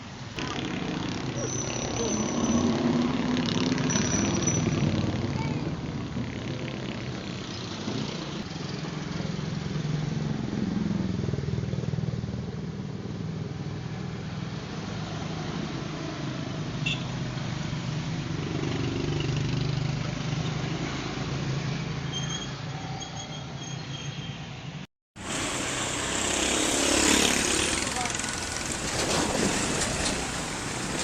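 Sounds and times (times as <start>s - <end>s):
vehicle engine humming: 25.2s - 31.0s.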